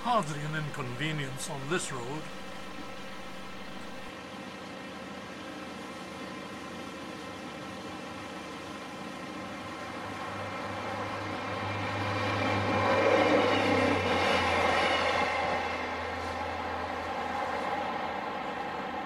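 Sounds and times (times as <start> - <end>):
diesel train passing: 0.0 - 4.1
steady engine hum: 0.0 - 4.1.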